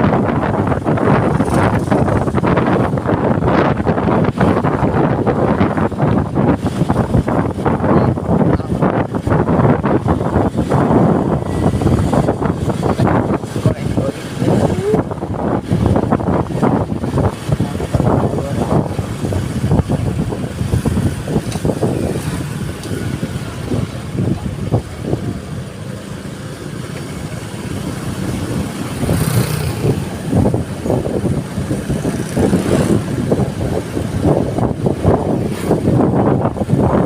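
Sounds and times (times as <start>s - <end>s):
vehicle engine and road rumble: 0.0s - 37.0s
wind gusting on microphone: 0.0s - 37.0s.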